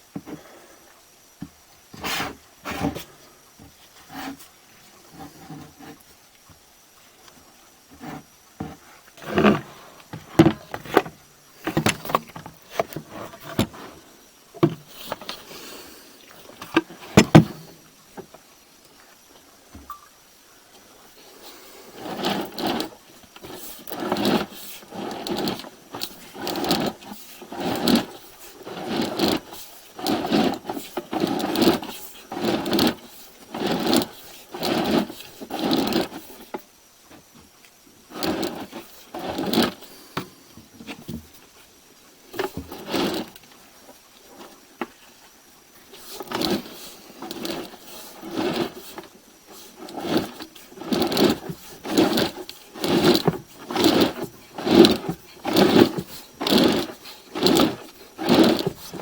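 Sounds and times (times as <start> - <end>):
cable scraping and rattling: 7.9 - 14.0, 21.8 - 37.3, 38.1 - 39.9, 42.3 - 43.4, 45.8 - 59.0.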